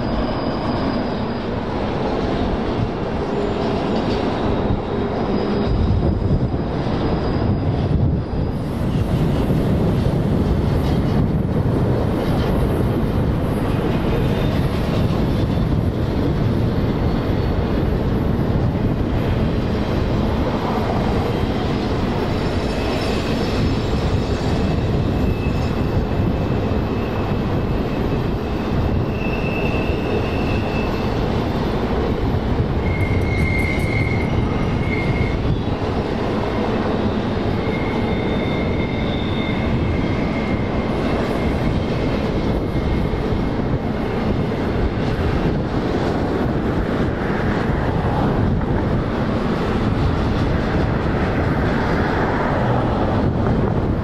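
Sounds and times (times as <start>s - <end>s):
high-pitched wheel squeals: 0.0s - 9.6s, 20.4s - 31.7s, 32.6s - 45.6s
freight train wheels rumbling: 0.0s - 54.0s.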